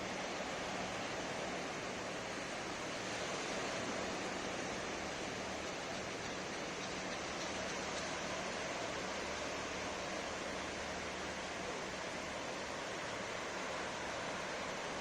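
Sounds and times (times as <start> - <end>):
ocean surf breaking on a beach: 0.0 - 15.0.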